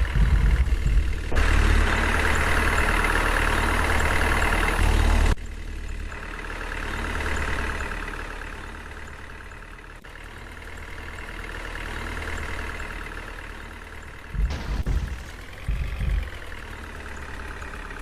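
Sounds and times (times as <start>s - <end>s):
loud low thuds: 0.0s - 1.4s, 14.3s - 16.6s
vehicle engine idling: 0.0s - 18.0s.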